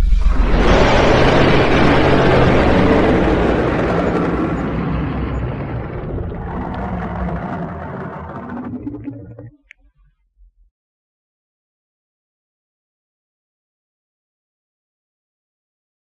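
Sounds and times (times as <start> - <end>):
dragon roar: 0.3 - 9.4.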